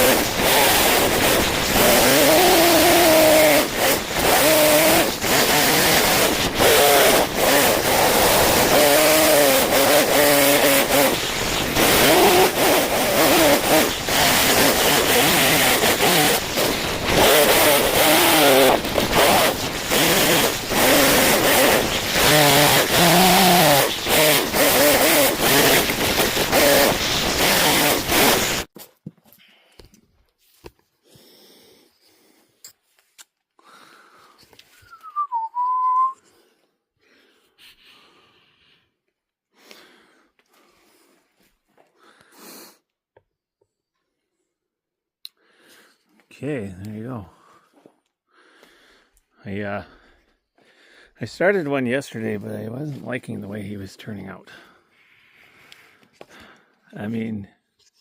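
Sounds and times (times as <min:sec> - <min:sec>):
chainsaw cutting wood: 0:00.0 - 0:28.7
person whistling: 0:34.7 - 0:36.3.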